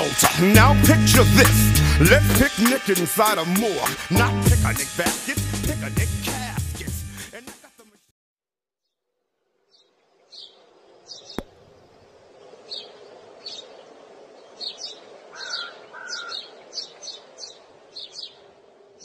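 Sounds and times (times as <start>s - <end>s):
birds chirping: 9.7s - 19.0s
lower steady bird calls: 9.7s - 19.0s.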